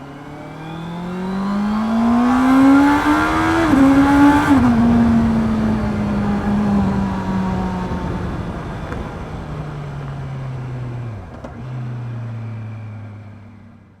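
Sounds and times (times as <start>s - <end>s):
motorcycle engine slowing: 0.8s - 13.8s.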